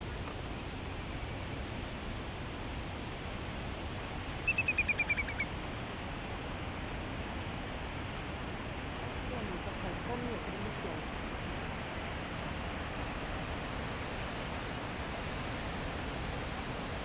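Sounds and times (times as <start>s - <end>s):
bird calling short notes: 4.4s - 5.5s.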